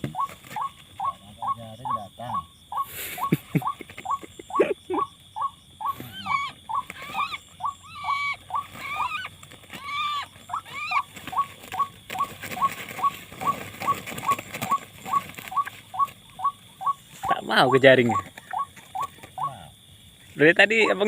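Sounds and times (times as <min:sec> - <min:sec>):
rising-and-falling bird calls: 0:00.0 - 0:19.8
faint rustle: 0:08.4 - 0:16.4.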